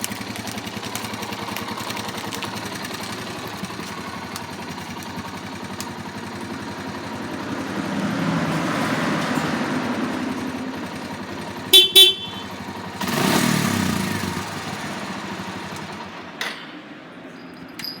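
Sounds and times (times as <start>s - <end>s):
motorcycle engine revving: 0.0s - 16.4s
short horn beeps: 11.7s - 12.6s.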